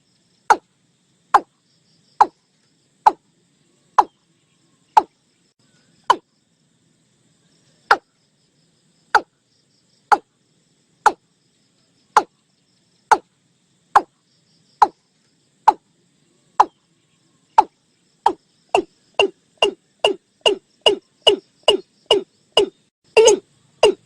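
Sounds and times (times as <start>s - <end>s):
bird calling falling notes: 17.6s - 24.0s.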